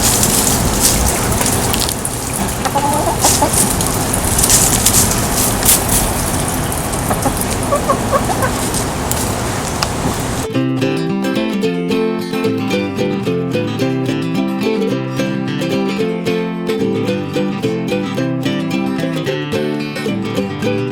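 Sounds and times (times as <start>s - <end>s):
steady rushing hiss: 0.0s - 10.5s
chickens clucking: 0.4s - 10.5s.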